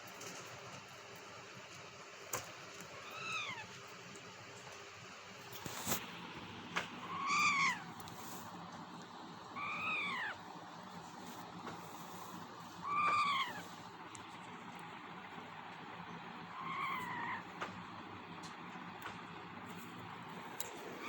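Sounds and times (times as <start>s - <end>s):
parrot calling: 7.0s - 8.0s, 9.5s - 10.5s, 12.8s - 13.8s, 16.4s - 17.5s.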